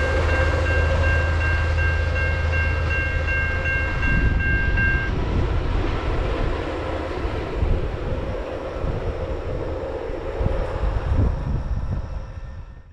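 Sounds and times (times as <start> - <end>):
level-crossing warning bell: 0.0 - 5.2
train rumbling on tracks: 0.0 - 12.9
wind buffeting microphone: 0.0 - 12.9.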